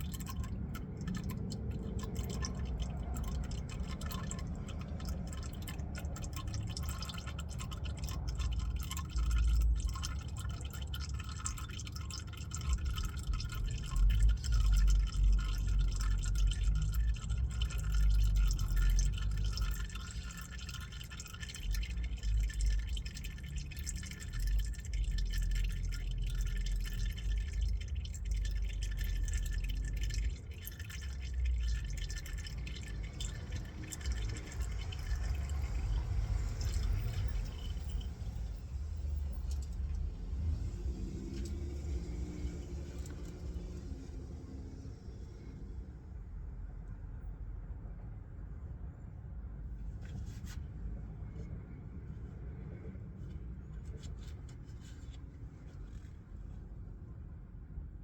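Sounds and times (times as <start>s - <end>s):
oil dripping into a pan: 0.0s - 45.3s.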